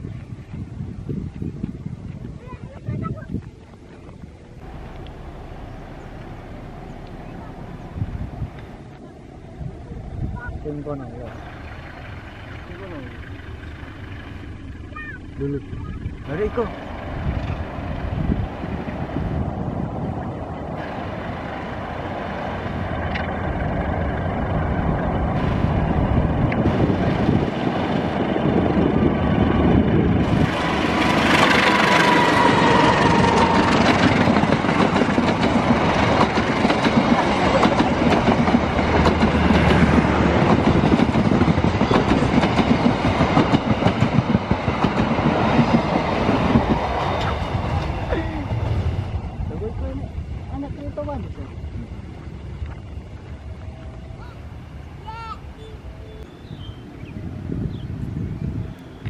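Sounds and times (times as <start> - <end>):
train passing: 4.4 - 59.0
wheels clattering over rail joints: 21.0 - 48.2.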